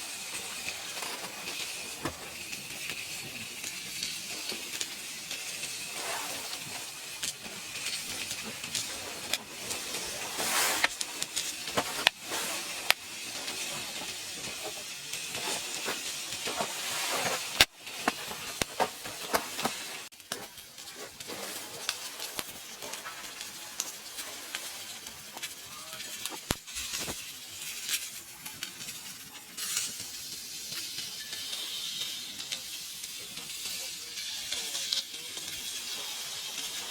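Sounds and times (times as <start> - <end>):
fire crackling and popping: 0.0 - 36.9
meat sizzling over fire: 0.0 - 36.9.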